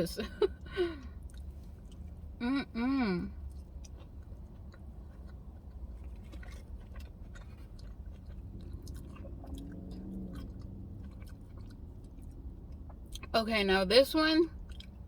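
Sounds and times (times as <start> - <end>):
wet chewing mouth sounds: 0.9 - 13.4, 14.4 - 15.0.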